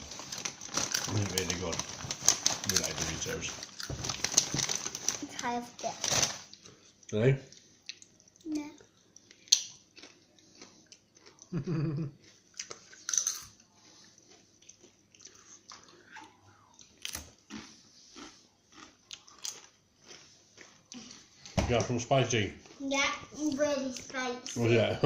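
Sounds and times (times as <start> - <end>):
tortilla chips crunching: 0.0 - 5.4, 9.3 - 16.1.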